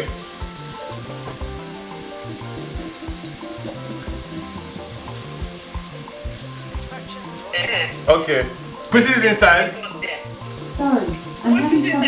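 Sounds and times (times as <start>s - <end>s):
background music: 0.0s - 12.0s
onions sizzling in oil: 0.0s - 12.0s.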